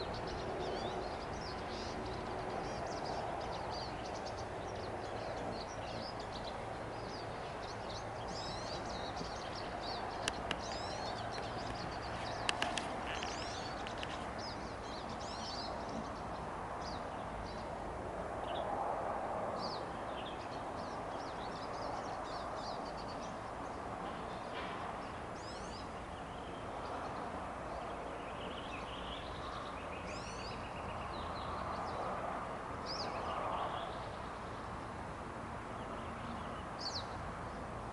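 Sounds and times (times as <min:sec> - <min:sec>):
small birds chirping: 0:00.0 - 0:17.8, 0:19.6 - 0:32.2, 0:32.8 - 0:34.8, 0:35.7 - 0:37.8
outdoor background hiss: 0:00.0 - 0:37.9
sharp clicks: 0:12.4 - 0:14.2.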